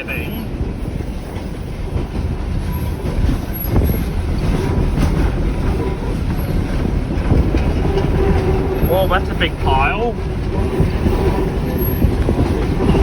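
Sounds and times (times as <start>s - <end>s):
rumble of wheels on rail: 0.0s - 13.0s
clacks over rail joints: 0.3s - 13.0s.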